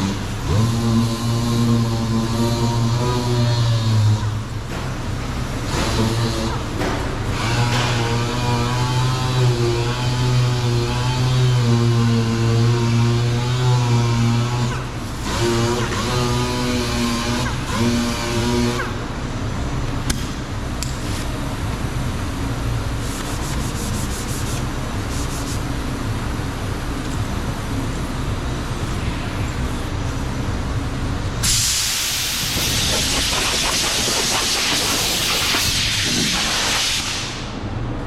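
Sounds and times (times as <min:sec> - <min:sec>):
low shop rumble: 0:00.0 - 0:38.0
compressed air hissing from air tool: 0:31.4 - 0:37.6.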